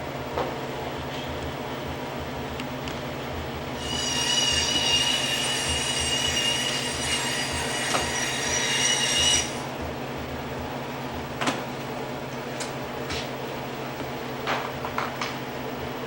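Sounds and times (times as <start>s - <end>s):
machine high-pitched whine: 3.2s - 11.1s.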